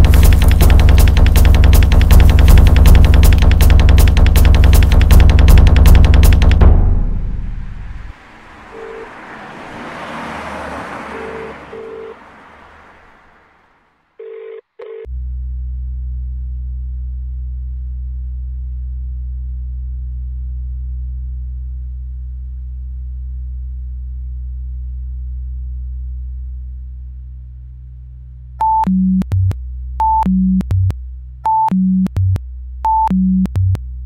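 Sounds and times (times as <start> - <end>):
steady low drone: 0.0 - 8.2, 15.1 - 31.4
short phone beeps: 11.2 - 12.1, 14.2 - 15.1.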